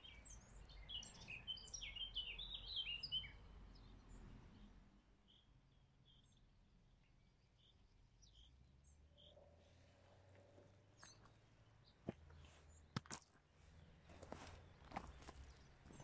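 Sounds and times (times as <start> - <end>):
faint bird chirps: 0.0 - 12.7.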